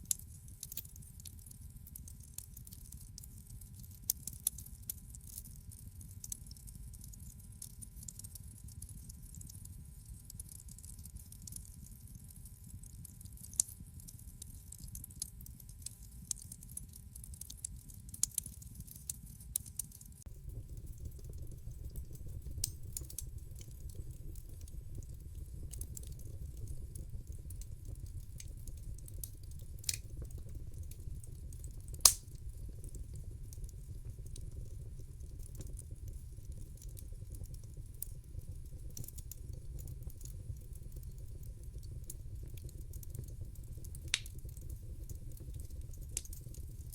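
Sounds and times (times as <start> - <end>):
wood fire crackling: 0.0 - 9.5, 14.8 - 46.9
low fire rumble: 20.2 - 46.9.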